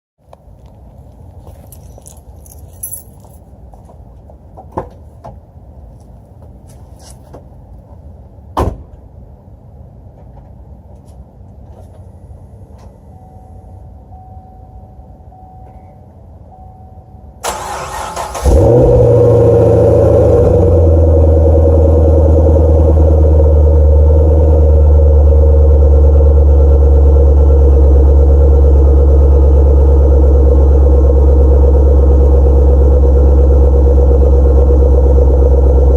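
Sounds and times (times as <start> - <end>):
car engine fast idle: 17.4 - 20.4
car engine cranking and starting: 17.4 - 35.9.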